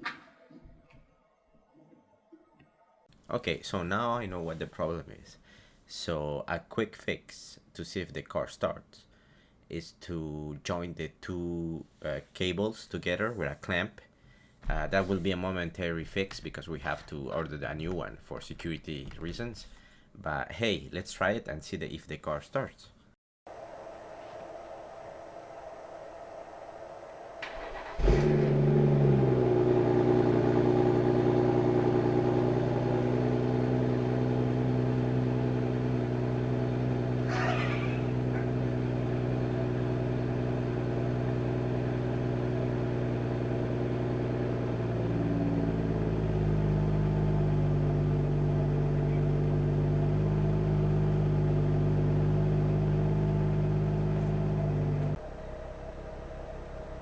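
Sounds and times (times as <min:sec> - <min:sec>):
car engine starting and idling: 0:25.1 - 0:57.0.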